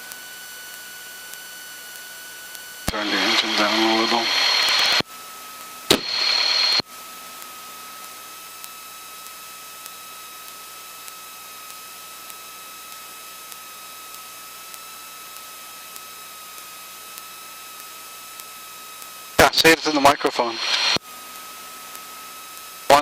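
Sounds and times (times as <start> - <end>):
thin constant whine: 0.0 - 23.0
electrical hiss: 5.9 - 6.8.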